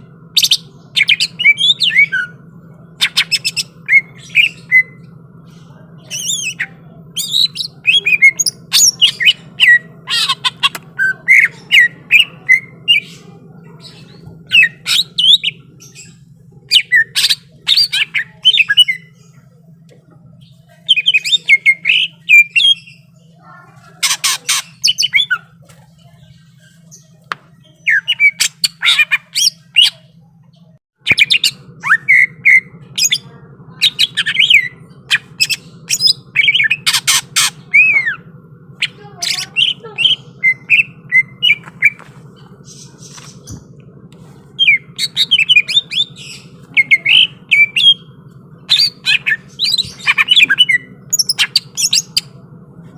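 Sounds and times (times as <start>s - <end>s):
bird chirping and whistling: 0.4s - 2.4s, 3.0s - 5.1s, 6.0s - 13.1s, 14.4s - 19.1s, 20.8s - 23.1s, 24.0s - 25.5s, 27.6s - 30.0s, 31.1s - 33.2s, 33.8s - 43.6s, 44.6s - 52.3s.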